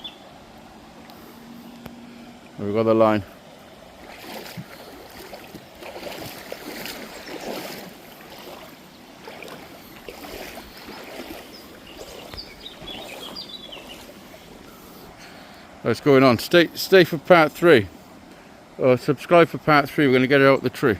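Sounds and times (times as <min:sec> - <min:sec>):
water splashing around wading legs: 0:03.4 - 0:14.7.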